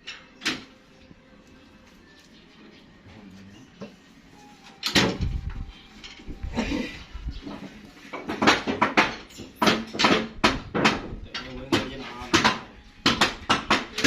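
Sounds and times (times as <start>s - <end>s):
knocks and clattering thumps: 7.4s - 14.0s.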